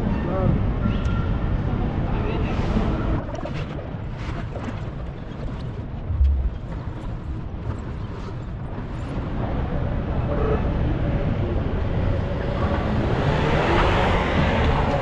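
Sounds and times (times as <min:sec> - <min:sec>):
city traffic rumble: 0:00.0 - 0:15.0
low thump: 0:06.1 - 0:07.4.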